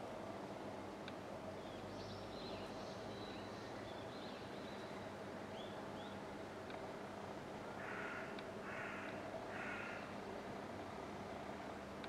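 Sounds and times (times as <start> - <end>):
outdoor background hum: 0.0 - 12.0
faint bird chirps and calls: 1.6 - 6.2.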